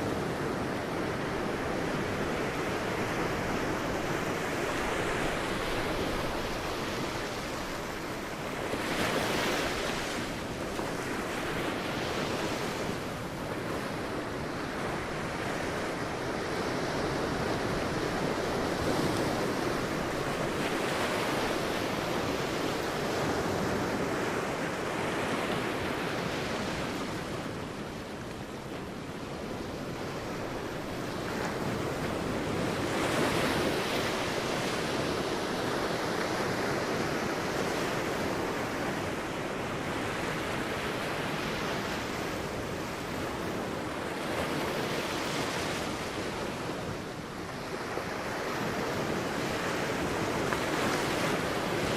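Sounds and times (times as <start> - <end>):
waves breaking on a beach: 0.0 - 51.9.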